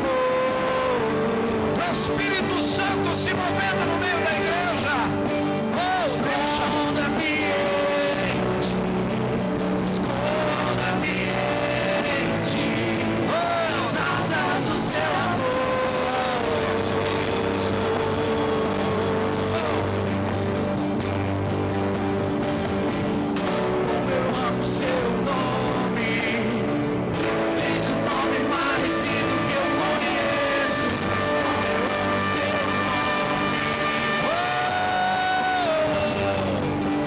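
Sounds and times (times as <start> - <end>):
slow sustained worship chords: 15.0 - 37.0.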